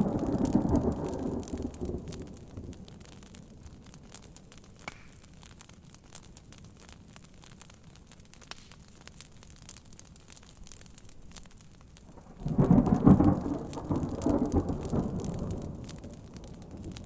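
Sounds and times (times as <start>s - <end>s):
thunder rumble: 0.0s - 3.8s, 12.1s - 17.0s
faint low hiss: 0.0s - 17.0s
wood fire crackling and popping: 0.0s - 17.0s.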